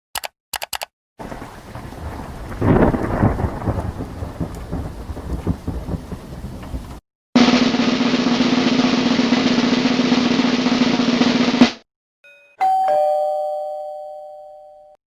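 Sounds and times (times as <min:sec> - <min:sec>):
snare drum roll: 0:06.5 - 0:11.8
snare drum hit: 0:07.4 - 0:11.8
two-note doorbell chime: 0:12.2 - 0:15.0.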